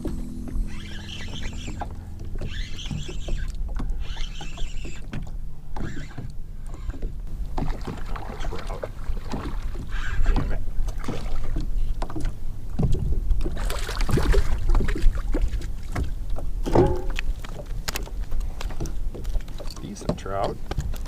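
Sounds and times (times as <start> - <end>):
knocks and clatter of gear: 16.0 - 21.0.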